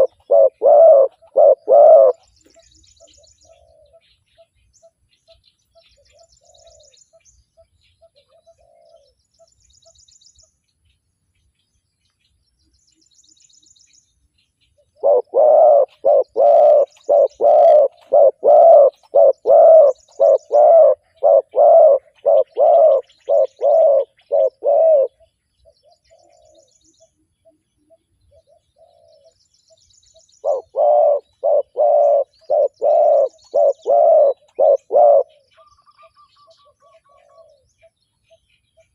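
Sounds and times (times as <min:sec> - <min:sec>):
distant dove cooing: 0:00.0 - 0:04.1, 0:08.2 - 0:09.2, 0:15.0 - 0:26.7, 0:27.9 - 0:29.4, 0:30.4 - 0:37.7
dove cooing close by: 0:00.0 - 0:04.1, 0:08.1 - 0:09.2, 0:15.0 - 0:26.7, 0:27.9 - 0:29.4, 0:30.4 - 0:37.7
small birds chirping faintly: 0:00.0 - 0:38.9.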